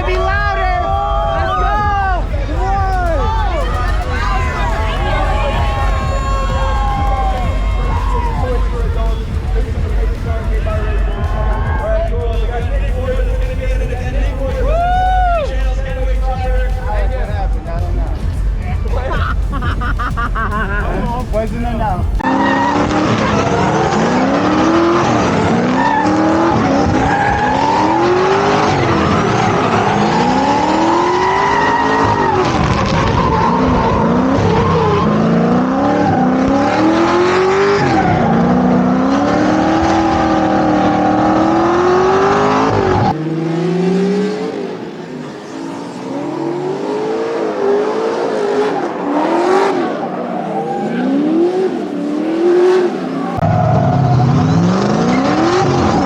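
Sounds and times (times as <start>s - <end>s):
car engines revving: 0.0s - 56.0s
tyre squeal: 3.6s - 9.3s, 22.2s - 43.1s, 45.0s - 56.0s.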